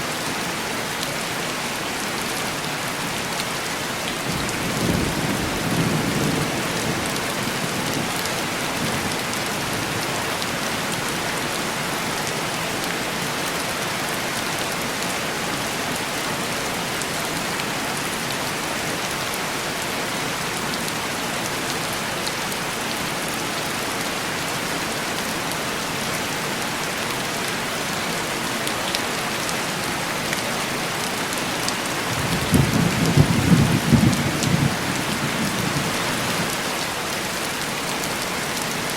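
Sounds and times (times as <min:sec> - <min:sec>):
heavy rain on a window: 0:00.0 - 0:38.9
thunder rumbling: 0:32.1 - 0:36.4.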